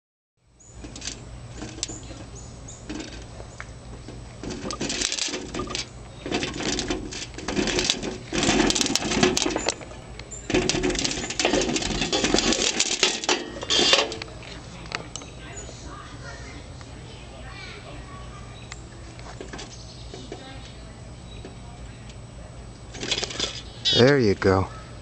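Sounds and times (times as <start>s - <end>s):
bird feeder rattling: 0.7s - 3.4s, 4.4s - 14.3s, 22.9s - 24.0s.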